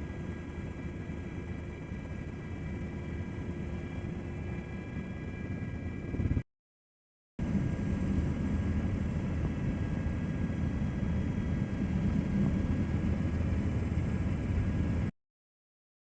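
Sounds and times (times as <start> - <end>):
thin whine tones: 0.0 - 6.4
helicopter rotor and engine rumble: 0.0 - 6.5, 7.4 - 15.1.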